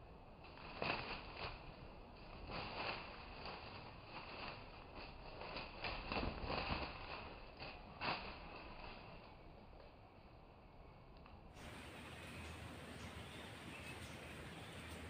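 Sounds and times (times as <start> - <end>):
dry leaves crackling: 0.0 - 10.8, 11.5 - 15.0
wing flapping: 0.5 - 9.5.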